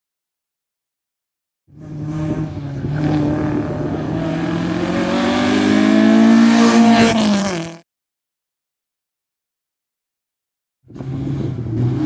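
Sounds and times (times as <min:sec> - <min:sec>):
car engine revving hard: 0:01.7 - 0:07.8.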